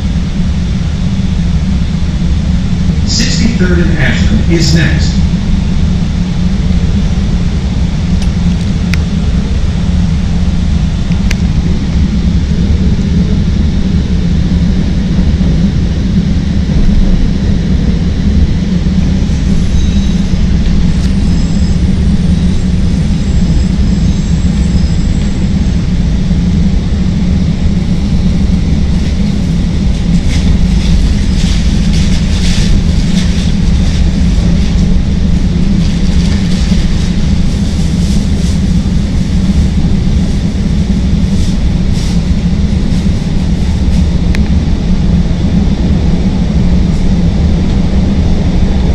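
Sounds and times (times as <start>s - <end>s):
train wheels rumbling on track: 0.0s - 48.9s
wheels rattling and hissing: 18.8s - 44.5s.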